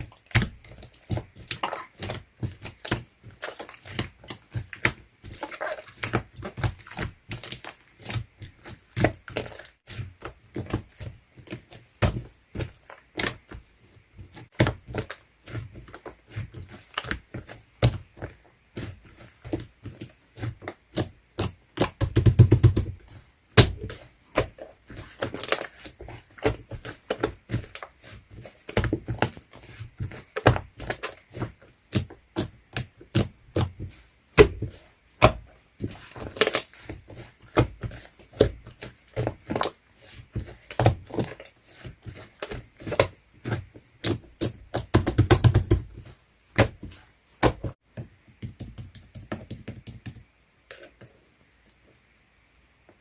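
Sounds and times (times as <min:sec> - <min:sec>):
slime squishing and popping: 0:00.3 - 0:13.4.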